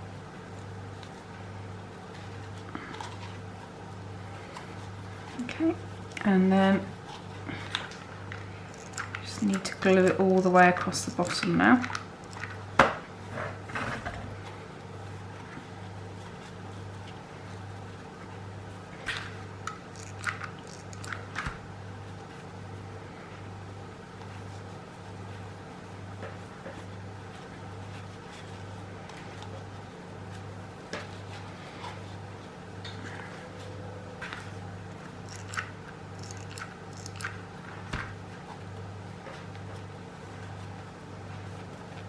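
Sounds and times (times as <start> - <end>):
small clicks and crinkles: 7.0 - 12.7, 19.0 - 22.5, 32.8 - 42.0.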